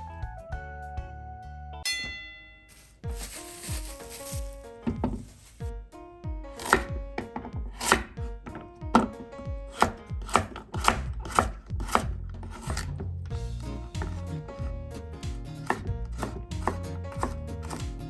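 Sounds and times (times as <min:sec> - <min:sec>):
knife chopping on cutting board: 0:06.6 - 0:13.0, 0:14.0 - 0:14.3, 0:15.3 - 0:18.0.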